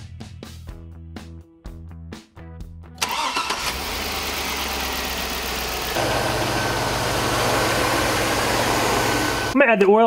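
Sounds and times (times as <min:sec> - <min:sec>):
car engine idling: 0:03.7 - 0:09.6.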